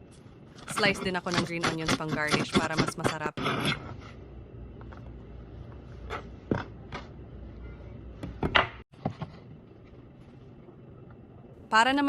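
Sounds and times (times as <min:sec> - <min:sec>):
low hum: 0:03.7 - 0:12.0.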